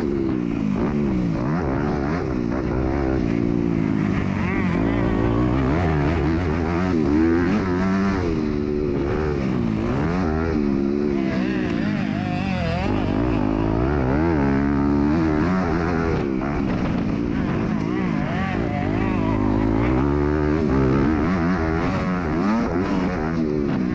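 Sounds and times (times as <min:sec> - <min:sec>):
motocross bike engine revving: 0:00.0 - 0:23.9.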